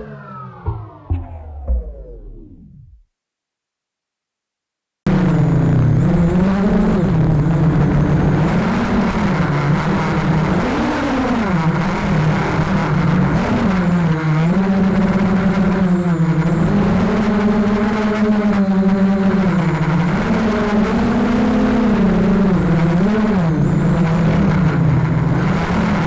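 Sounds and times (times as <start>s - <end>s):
drone motors whining: 0.0s - 3.0s.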